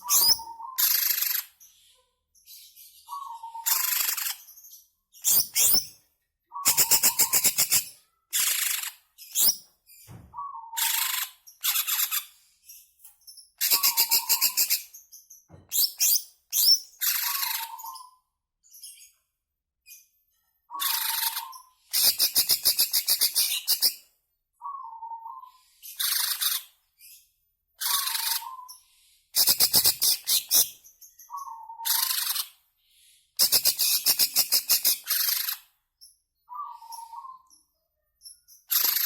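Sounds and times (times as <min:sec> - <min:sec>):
bird singing rattling trills: 0:00.0 - 0:01.4.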